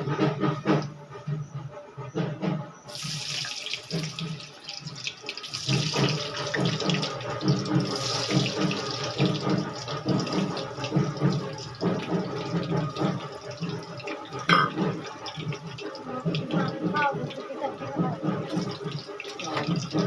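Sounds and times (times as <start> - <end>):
potatoes sizzling in hot oil: 2.9 - 14.4.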